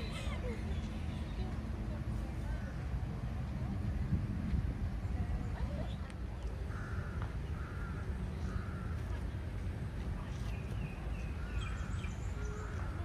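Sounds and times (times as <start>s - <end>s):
steady low rumble: 0.0s - 13.0s
bird calling: 6.6s - 9.3s, 10.4s - 13.0s.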